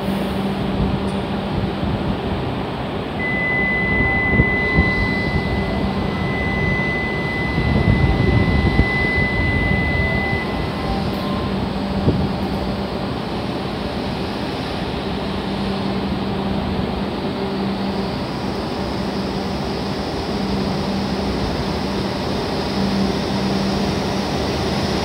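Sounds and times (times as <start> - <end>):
train equipment humming: 0.0 - 25.0
high electronic tone: 3.2 - 12.8.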